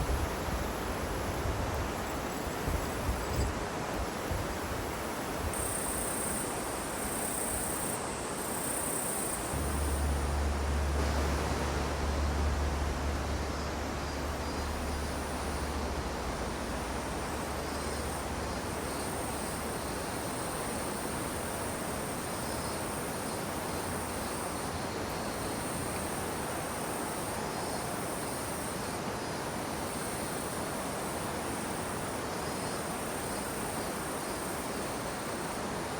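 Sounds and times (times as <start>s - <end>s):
even hiss: 0.0s - 35.9s
insects chirping: 0.0s - 35.9s
low rumble: 9.6s - 19.8s.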